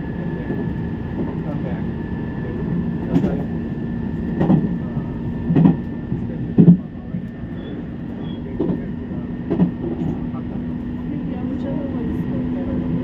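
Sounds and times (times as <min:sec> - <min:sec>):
train rumbling: 0:00.0 - 0:13.0
train knocks: 0:03.0 - 0:03.5, 0:04.2 - 0:10.4.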